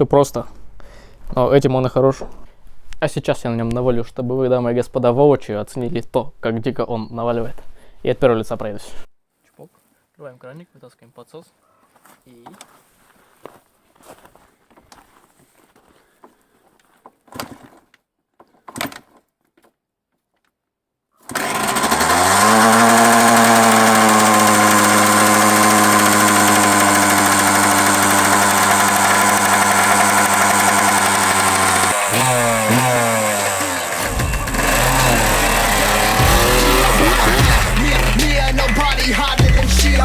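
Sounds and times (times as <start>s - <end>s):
two-stroke engine idling and revving: 21.3s - 40.0s
kick-starter knocks: 32.1s - 39.8s.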